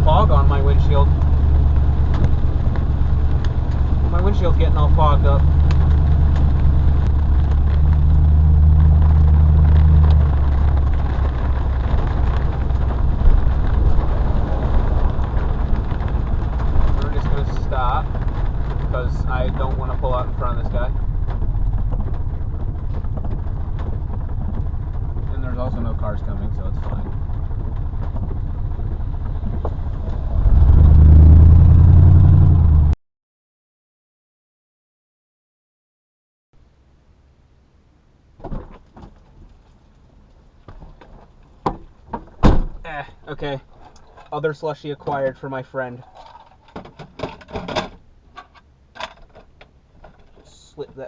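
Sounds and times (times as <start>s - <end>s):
road noise hiss: 0.0s - 32.4s, 36.6s - 46.7s
truck engine drone: 0.0s - 33.0s.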